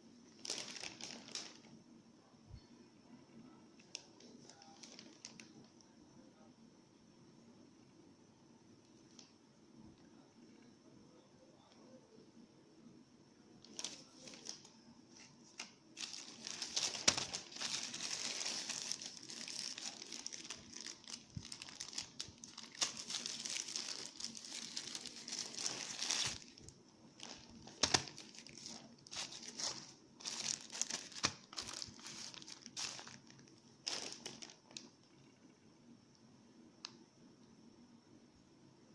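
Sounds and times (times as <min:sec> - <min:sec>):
packaging crinkling and rustling: 0:00.3 - 0:01.7, 0:03.8 - 0:05.6, 0:13.6 - 0:35.0.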